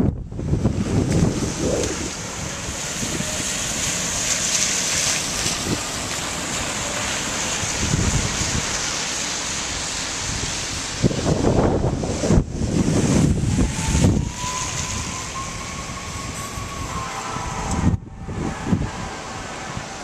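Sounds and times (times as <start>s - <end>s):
storm wind rushing: 0.0s - 3.9s, 7.5s - 8.9s, 9.7s - 20.0s
gusts buffeting microphone: 0.0s - 6.6s, 7.3s - 20.0s.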